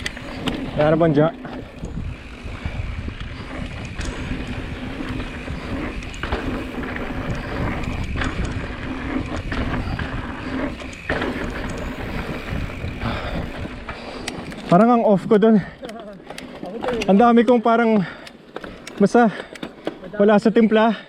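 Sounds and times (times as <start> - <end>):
tyres rumbling on dirt: 0.0 - 20.4
bike rattling and knocking: 0.0 - 20.5
wind on microphone: 1.6 - 14.7.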